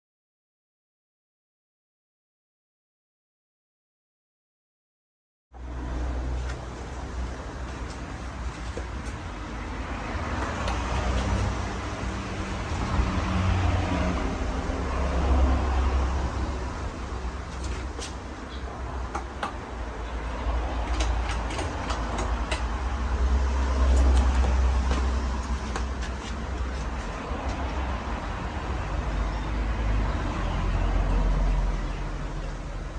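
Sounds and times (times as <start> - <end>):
ceiling fan airflow rushing: 5.6 - 31.5.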